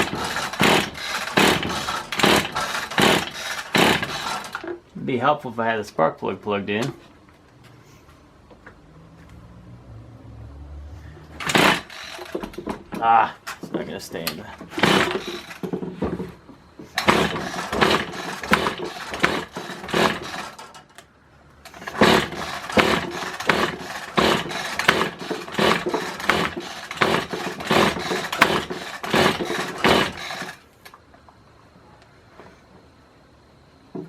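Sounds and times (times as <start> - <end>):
engine turning over: 0.0 - 4.8, 11.2 - 13.9, 14.6 - 21.0, 21.6 - 30.7
recoil starter pulled: 0.0 - 4.8, 11.2 - 31.0.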